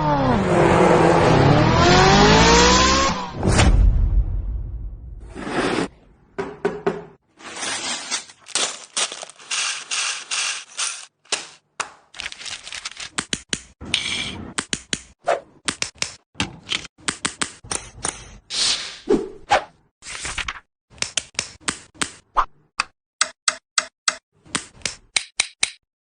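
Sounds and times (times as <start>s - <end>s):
plastic bricks clattering and clicking: 7.8s - 11.6s, 12.2s - 13.4s.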